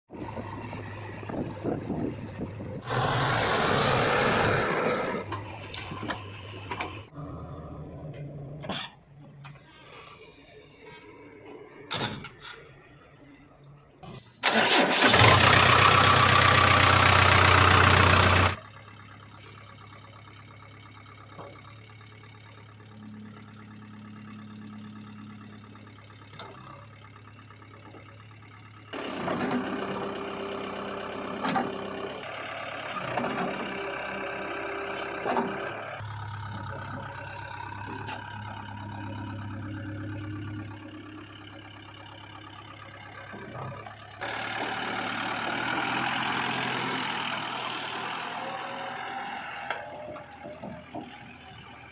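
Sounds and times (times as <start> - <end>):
diesel engine idling: 12.6 - 51.9.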